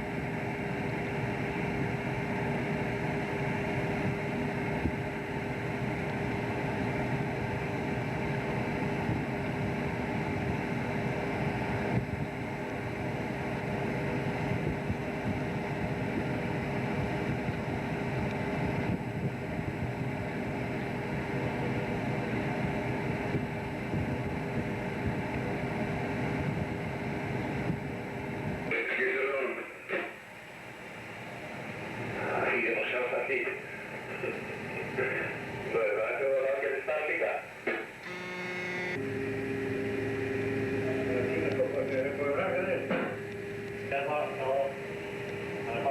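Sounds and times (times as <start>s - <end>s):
boat engine rumbling: 39.0s - 45.9s.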